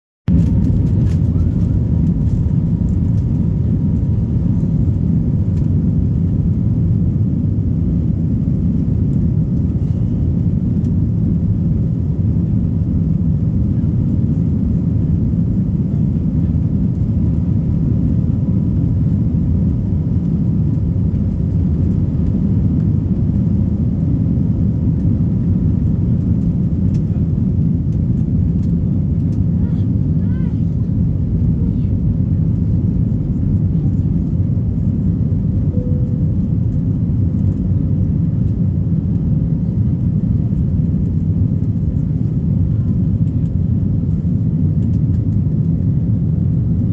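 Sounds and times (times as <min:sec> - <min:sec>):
jet engines rumbling: 0:00.3 - 0:46.9
faint high tone: 0:35.7 - 0:36.7.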